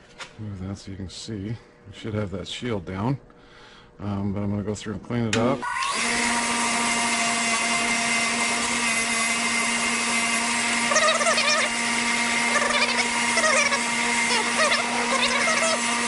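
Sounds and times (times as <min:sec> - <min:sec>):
wire wheel motor humming: 0:05.8 - 0:16.0.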